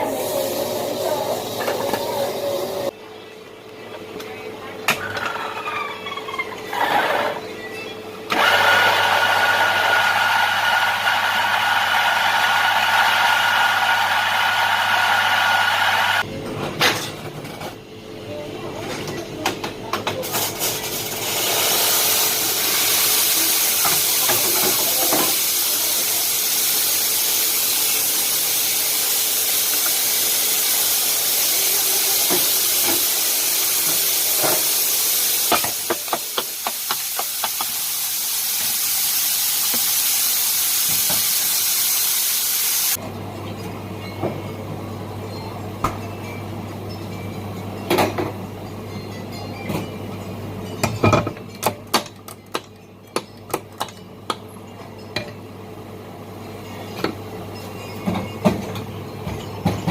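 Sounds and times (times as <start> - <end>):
steam wand hissing: 0.0 - 2.9, 8.4 - 16.2, 21.2 - 43.0.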